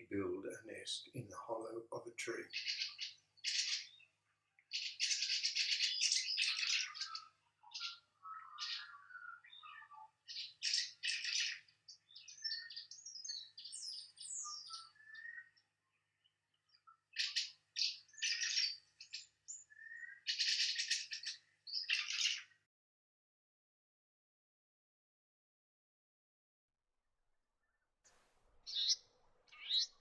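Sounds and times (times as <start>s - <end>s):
birds twittering: 0.0s - 22.6s, 28.6s - 30.0s.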